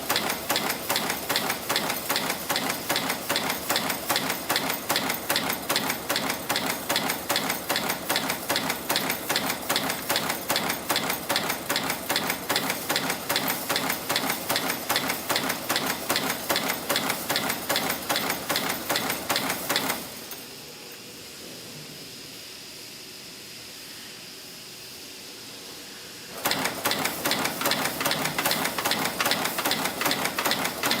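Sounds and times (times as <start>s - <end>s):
wire-forming machine clattering: 26.4s - 31.0s.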